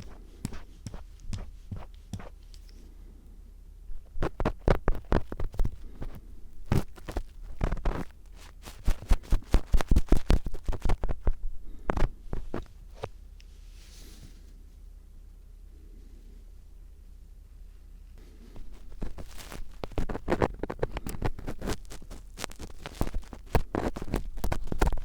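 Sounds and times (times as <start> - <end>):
screwdriver scraping and tapping: 0.0 - 2.8, 18.7 - 25.0.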